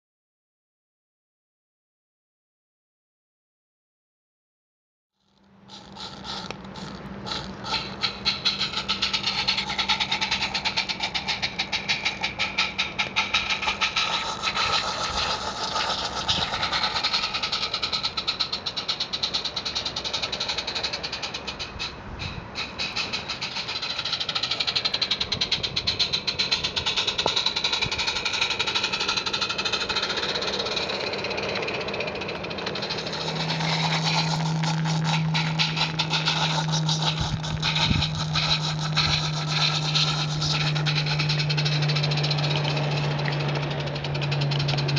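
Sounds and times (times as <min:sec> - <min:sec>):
model train clattering on track: 0:05.7 - 0:44.9
wavering high-pitched tones: 0:28.5 - 0:44.9.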